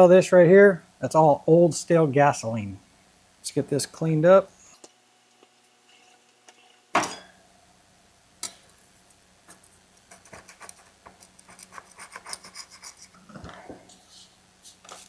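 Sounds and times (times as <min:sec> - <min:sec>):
light scratching on metal: 0:09.5 - 0:13.2.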